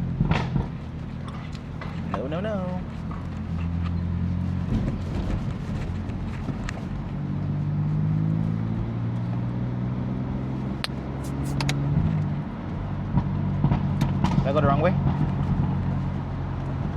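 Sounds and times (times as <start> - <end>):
car engine at low revs: 0.0 - 16.9
sharp clicks: 10.8 - 11.8.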